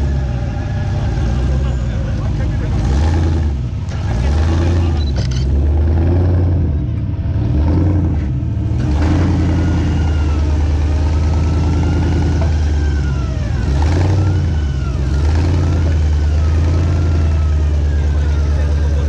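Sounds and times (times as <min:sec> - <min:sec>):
high engine whines: 0:00.0 - 0:19.0
off-road vehicle engine running: 0:00.0 - 0:19.0.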